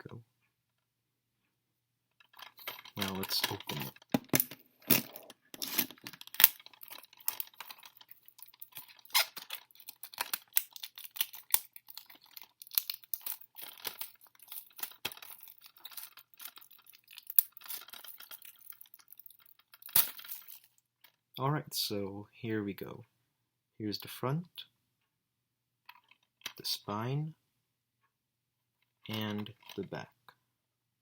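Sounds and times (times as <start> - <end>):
plastic shrink wrap crinkling: 5.6 - 20.7.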